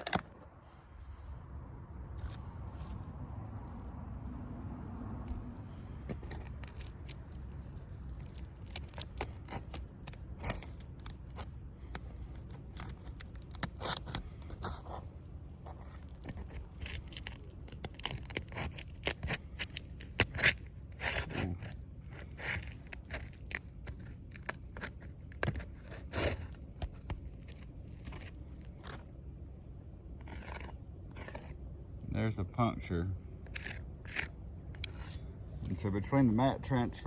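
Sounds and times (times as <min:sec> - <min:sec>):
shingles scraping and crackling: 0:06.0 - 0:29.3, 0:30.2 - 0:31.6.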